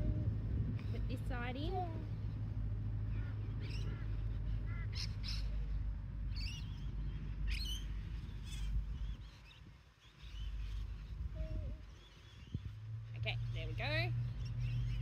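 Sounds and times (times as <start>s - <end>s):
low rumble: 0.0s - 9.3s
birds chirping and warbling: 0.0s - 15.0s.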